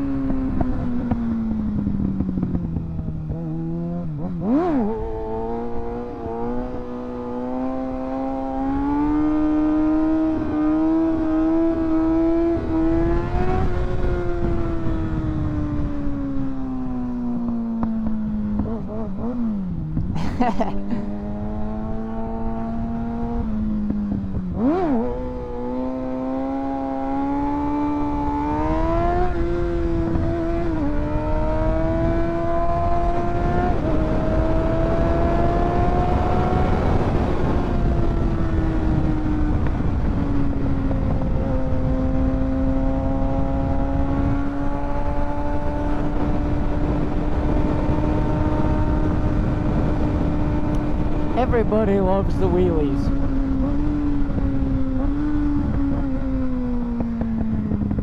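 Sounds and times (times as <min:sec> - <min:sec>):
motorcycle engine revving: 0:00.0 - 0:58.0
wind rushing over microphone: 0:00.0 - 0:58.0.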